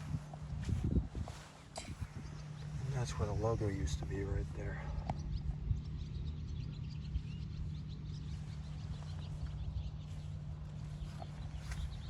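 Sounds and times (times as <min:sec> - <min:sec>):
birds chirping: 0:00.0 - 0:12.0
steady low hum: 0:00.0 - 0:12.0.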